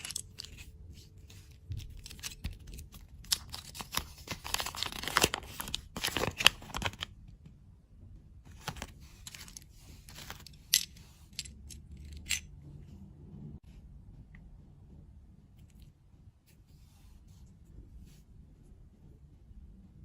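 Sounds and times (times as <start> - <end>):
candy packaging crackling: 1.6 - 7.1.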